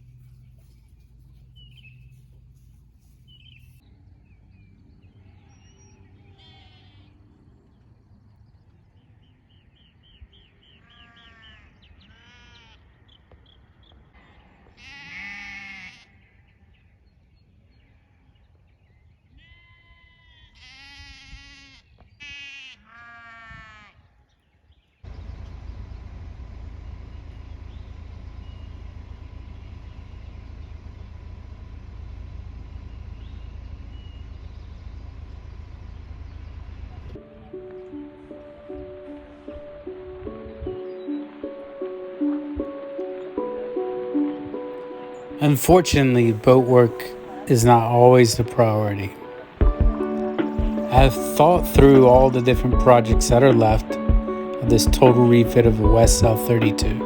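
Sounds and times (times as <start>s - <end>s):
steady rumbling noise: 0.0s - 3.8s
sheep bleating: 6.2s - 7.2s, 10.9s - 12.9s, 14.8s - 16.3s, 19.4s - 24.0s.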